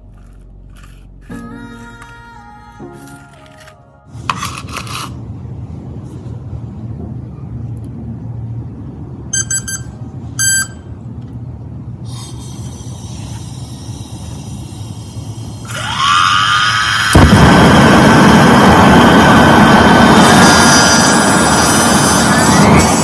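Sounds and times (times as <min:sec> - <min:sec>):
short electronic beeps: 0:09.4 - 0:10.9
small piston engine running: 0:12.0 - 0:23.0.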